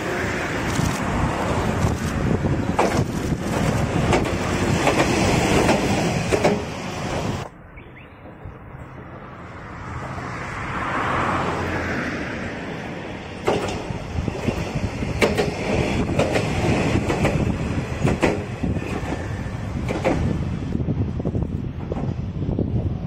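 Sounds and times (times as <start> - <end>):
train wheels clickety-clack: 1.7 - 7.4, 13.4 - 20.5, 21.8 - 22.3
diesel railcar engine running: 12.3 - 23.0.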